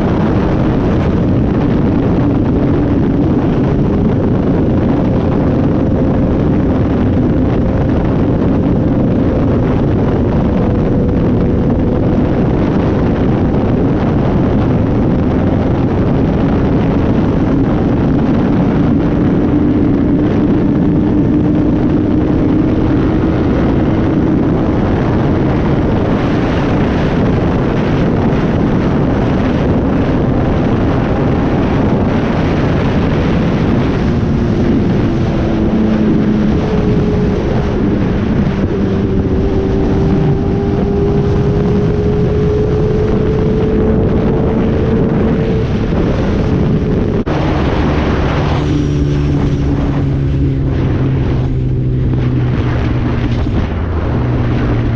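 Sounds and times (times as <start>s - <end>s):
heavy wind rush: 0.0s - 54.9s
motorcycle engine drone: 0.0s - 54.9s.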